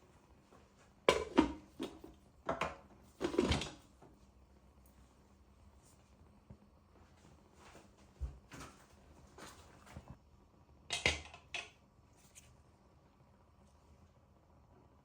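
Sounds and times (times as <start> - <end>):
objects knocking and scraping: 1.1 - 3.8.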